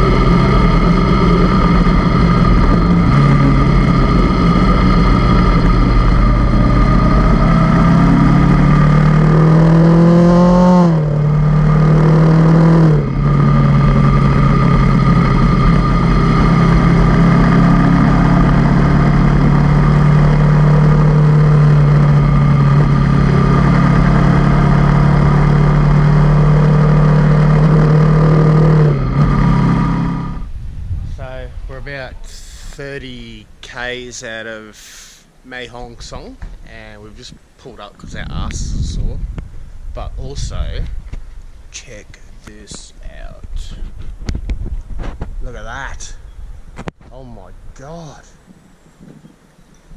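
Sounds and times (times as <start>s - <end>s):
motorcycle engine revving: 0.0s - 30.5s.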